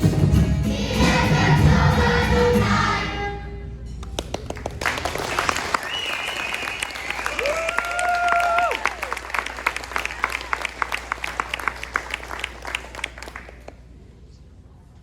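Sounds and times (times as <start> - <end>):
choir singing with accompaniment: 0.0 - 3.5
audience clapping: 4.0 - 13.9.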